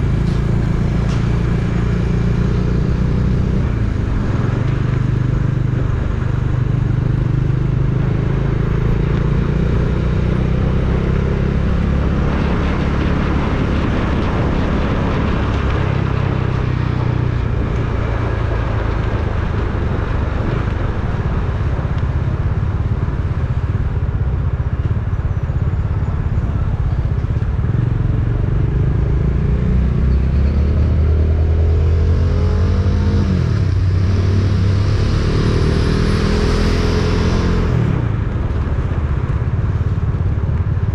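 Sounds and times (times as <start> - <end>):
road and wind noise: 0.0 - 40.9
vehicle engine driving: 0.0 - 40.9.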